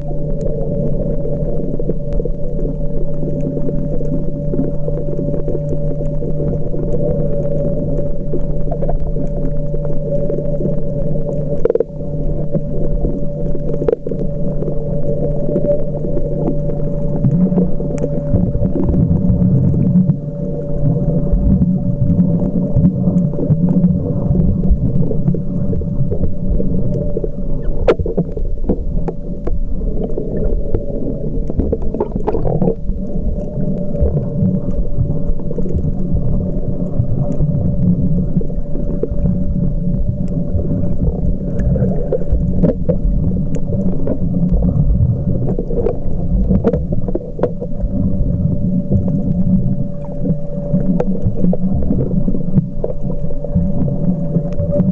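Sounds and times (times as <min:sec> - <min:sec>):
muffled underwater rumble: 0:00.0 - 0:54.9
steady hum: 0:00.0 - 0:54.9
faint clicks: 0:24.7 - 0:37.8, 0:49.0 - 0:54.9.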